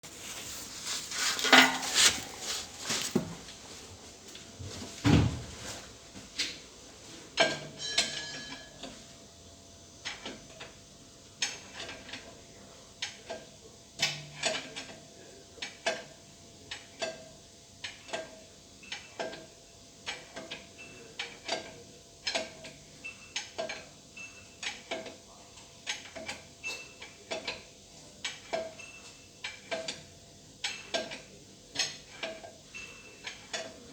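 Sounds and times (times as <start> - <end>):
ringing metallic clinks and knocks: 7.8 - 8.8.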